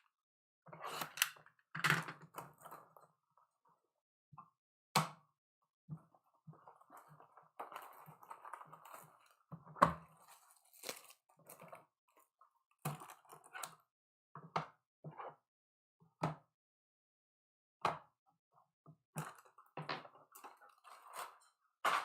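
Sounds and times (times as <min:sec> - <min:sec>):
plastic and foil wrappers crinkling: 0:10.2 - 0:11.7.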